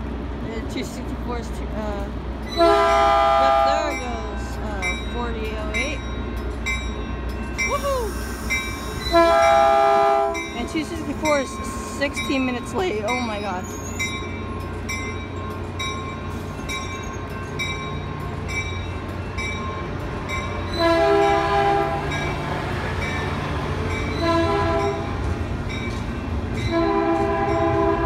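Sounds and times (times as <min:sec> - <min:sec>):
low train rumble: 0:00.0 - 0:28.0
crossing bell dinging: 0:01.8 - 0:28.0
train horn blasts: 0:02.6 - 0:03.9, 0:09.1 - 0:10.5, 0:20.7 - 0:22.3, 0:24.2 - 0:25.1, 0:26.6 - 0:28.0.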